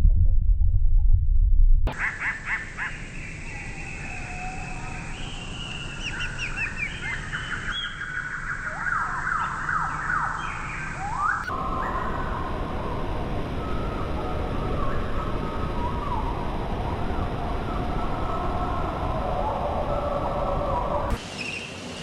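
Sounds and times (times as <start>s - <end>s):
birds chirping and whistling: 1.9s - 21.9s.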